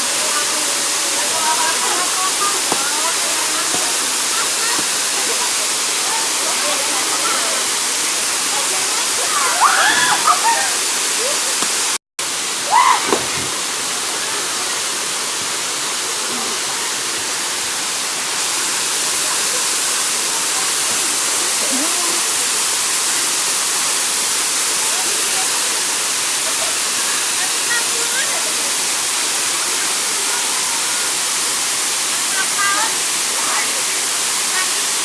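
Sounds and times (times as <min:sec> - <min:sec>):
faint shouting voices: 0:00.0 - 0:11.6
waterfall rushing: 0:00.0 - 0:35.0.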